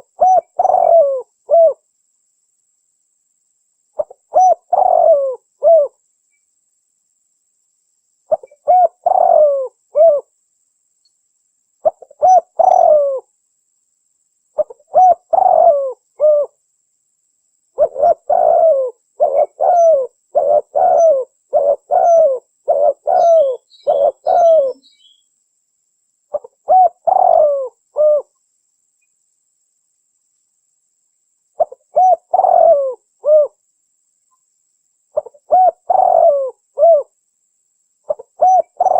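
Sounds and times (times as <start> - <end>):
dove cooing: 0.0 - 1.8, 4.0 - 6.0, 8.3 - 10.3, 11.8 - 13.3, 14.6 - 16.6, 17.8 - 25.2, 26.3 - 28.3, 31.6 - 33.6, 35.2 - 37.1, 38.1 - 38.9.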